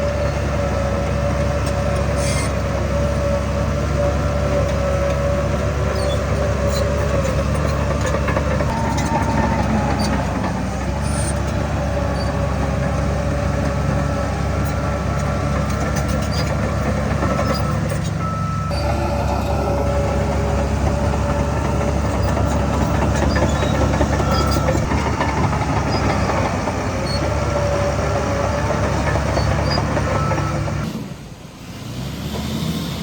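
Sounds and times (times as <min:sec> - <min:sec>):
diesel machinery running under load: 0:00.0 - 0:33.0
thin metallic squeals: 0:01.6 - 0:03.4, 0:04.0 - 0:24.9.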